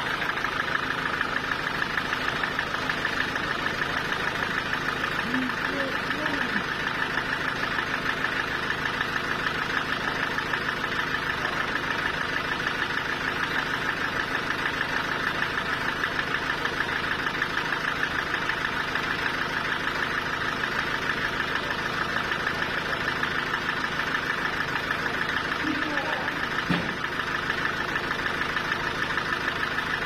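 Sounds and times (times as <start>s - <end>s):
sawmill machinery drone: 0.0s - 13.8s.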